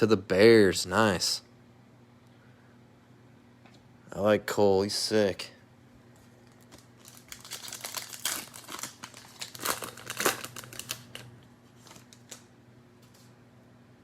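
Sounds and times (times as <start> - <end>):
cellophane wrapper crinkling: 6.2 - 13.3.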